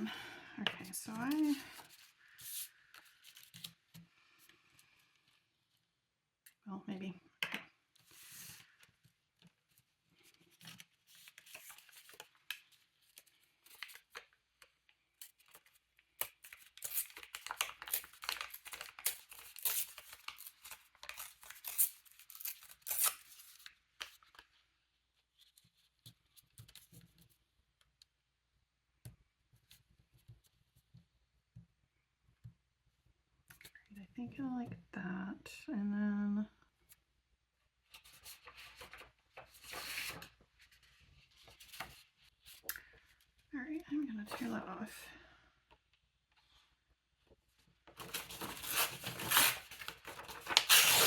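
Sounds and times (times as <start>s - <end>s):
paper scratching and rustling: 48.0s - 51.0s.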